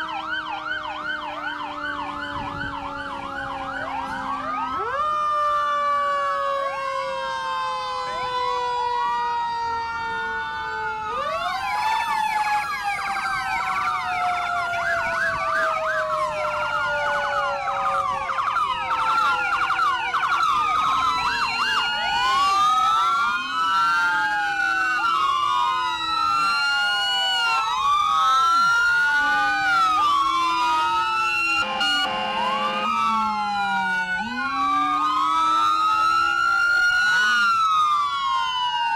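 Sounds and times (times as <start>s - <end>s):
short steady siren blast: 0.0s - 38.9s
sirens wailing: 0.0s - 38.9s
long falling tone: 18.8s - 38.9s.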